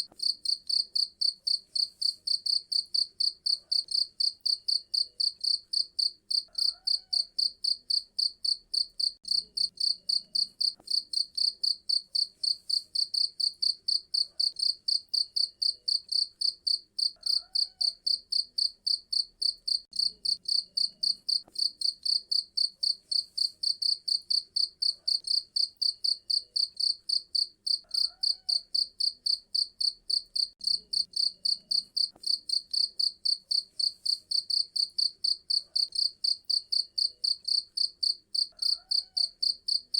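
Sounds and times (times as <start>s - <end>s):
cricket chirping: 0.2s - 39.9s.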